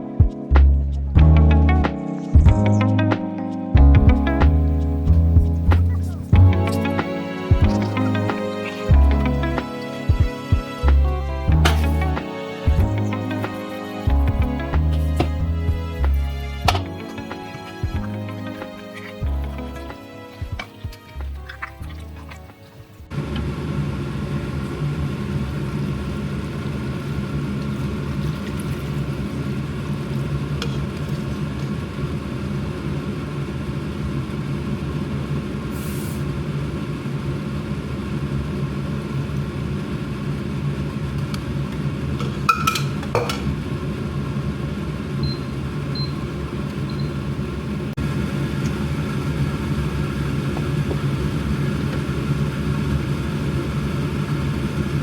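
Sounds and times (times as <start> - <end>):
low mechanical drone: 3.8 - 13.5, 14.1 - 17.2, 19.2 - 19.9.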